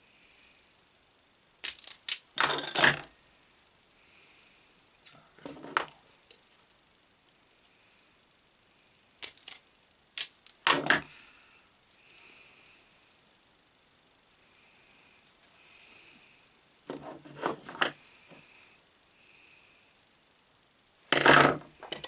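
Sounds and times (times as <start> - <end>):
faint hiss: 0.0 - 1.6, 3.1 - 16.9, 18.0 - 21.2
tools clicking on workbench: 21.2 - 22.0.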